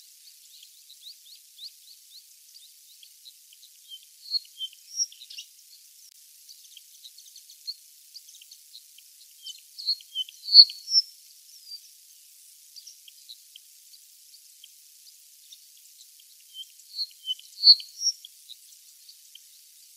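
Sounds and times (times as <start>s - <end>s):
small birds chirping: 0.0s - 19.9s
sharp bird calls: 6.5s - 11.8s, 16.4s - 19.9s.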